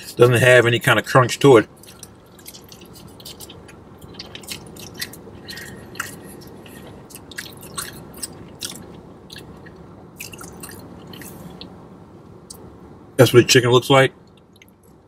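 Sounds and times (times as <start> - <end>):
person chewing with wet mouth clicks: 1.8 - 11.7.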